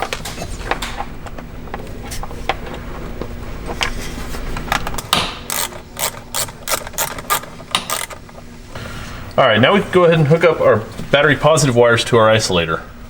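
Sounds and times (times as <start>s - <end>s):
ratchet wrench clicking: 5.0s - 8.3s.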